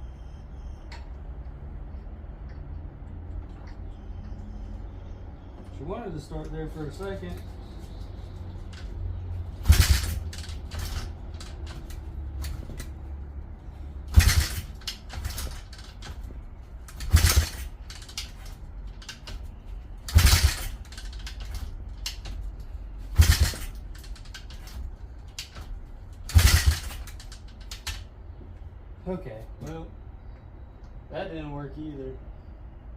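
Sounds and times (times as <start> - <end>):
light clicks and rattles: 5.6 - 28.7
motorbike engine turning over: 7.8 - 13.0, 13.6 - 28.1.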